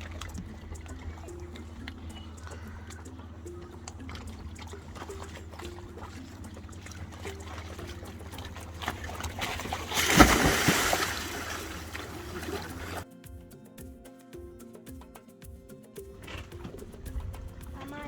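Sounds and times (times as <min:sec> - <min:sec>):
steady low hum: 0:00.0 - 0:13.0
water trickling and lapping: 0:00.0 - 0:13.1, 0:16.0 - 0:18.0
loud water splash: 0:08.4 - 0:13.0.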